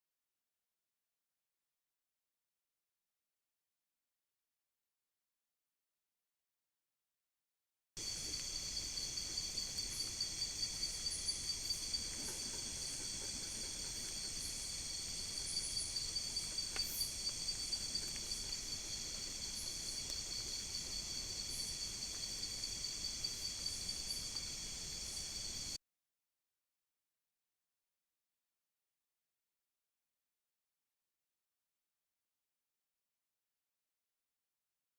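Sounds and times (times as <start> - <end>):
crickets and insects trilling: 8.0 - 25.8.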